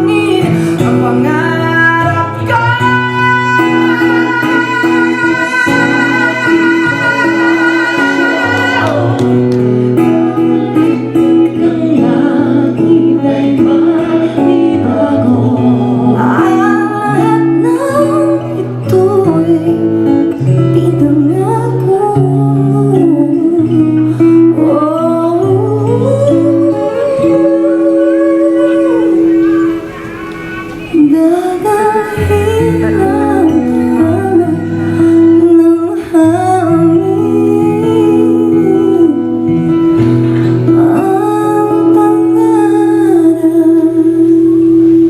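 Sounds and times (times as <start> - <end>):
woman singing long note: 0.0 - 9.2
live band playing slow ballad: 0.0 - 45.0.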